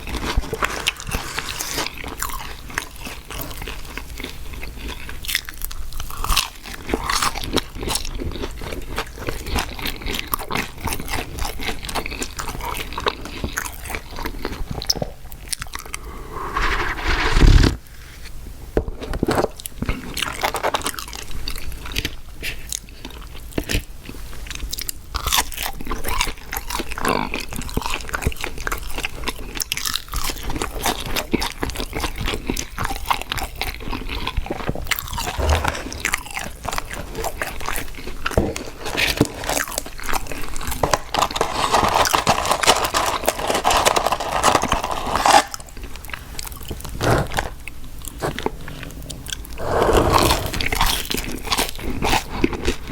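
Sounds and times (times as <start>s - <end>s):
biting and chewing food: 0.0s - 16.0s, 24.6s - 52.9s
wet mouth clicks: 35.2s - 36.2s.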